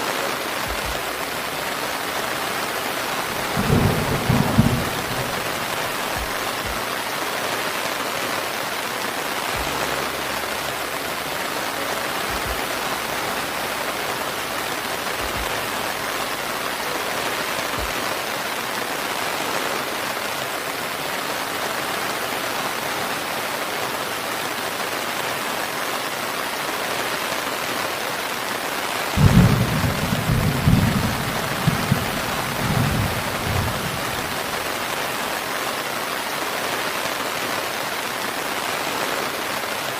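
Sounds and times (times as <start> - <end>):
rain falling: 0.0 - 39.9
thunder rumbling: 0.6 - 7.2, 29.2 - 35.0.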